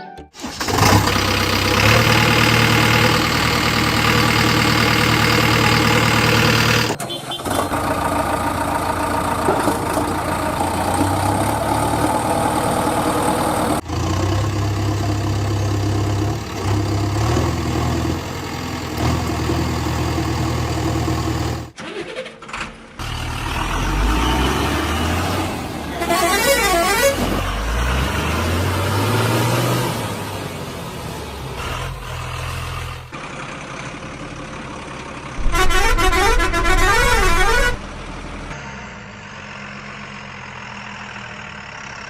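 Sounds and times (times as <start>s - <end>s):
truck engine revving: 0.4s - 33.4s, 35.3s - 41.7s
warbling horn-like tone: 35.4s - 37.8s.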